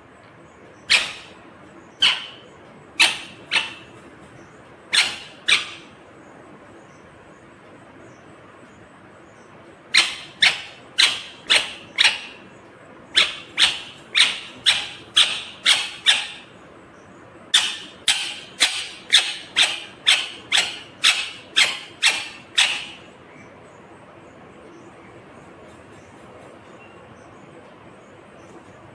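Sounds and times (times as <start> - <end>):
parakeet calling: 0.6 - 8.2, 9.3 - 23.5.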